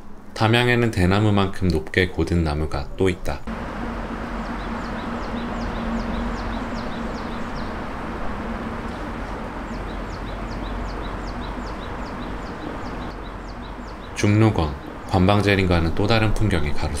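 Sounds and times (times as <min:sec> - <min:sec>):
outdoor ambience rush: 0:00.0 - 0:17.0
low steady hum: 0:02.8 - 0:17.0
bird chirping: 0:03.5 - 0:17.0.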